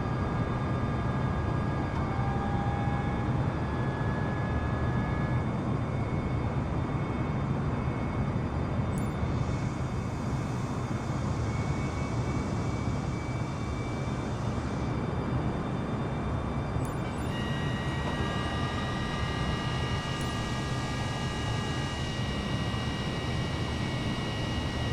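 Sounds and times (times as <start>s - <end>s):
high engine whining tones: 13.4s - 24.9s.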